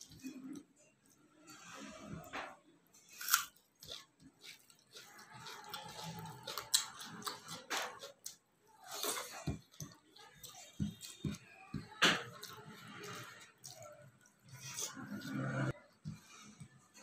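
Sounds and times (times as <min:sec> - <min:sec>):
wet chewing with lip smacks: 0:03.8 - 0:11.4.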